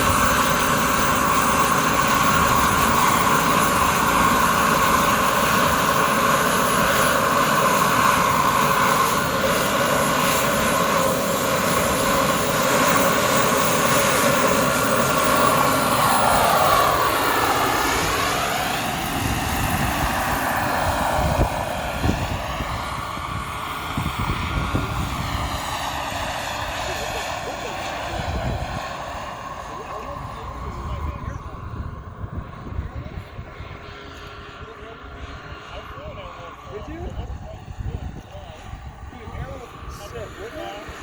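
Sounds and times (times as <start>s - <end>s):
model helicopter rotor whine: 0.0s - 41.0s
wind on microphone: 0.0s - 41.0s.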